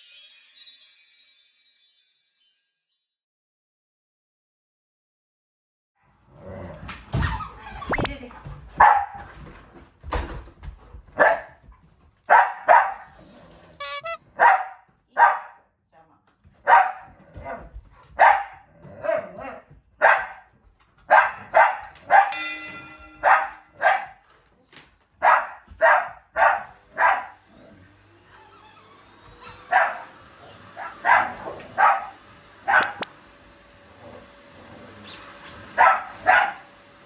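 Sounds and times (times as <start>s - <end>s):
dogs barking: 8.8s - 9.2s, 12.3s - 13.1s, 14.4s - 15.5s, 16.7s - 17.1s, 18.2s - 20.4s, 21.1s - 22.4s, 23.2s - 24.2s, 25.2s - 27.4s, 29.7s - 30.0s, 30.8s - 33.1s, 35.8s - 36.6s
vacuum cleaner motor whine: 27.4s - 37.0s.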